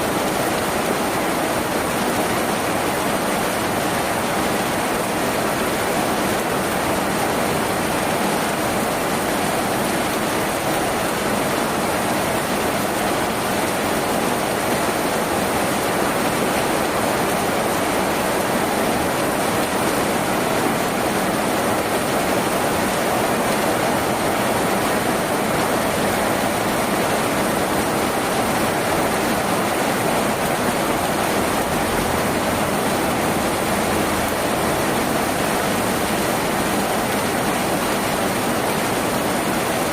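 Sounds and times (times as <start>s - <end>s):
rain on a tin roof: 0.0s - 39.9s.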